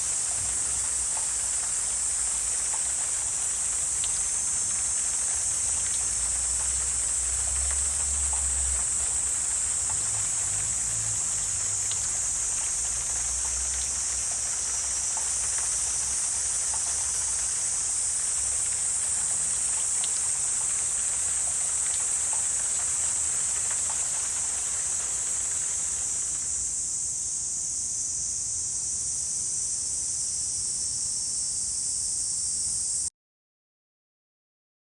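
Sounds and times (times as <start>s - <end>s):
high-pitched insect chorus: 0.0s - 33.1s
faint ticks: 1.1s - 3.1s, 7.5s - 10.6s, 11.9s - 13.9s, 16.6s - 17.5s.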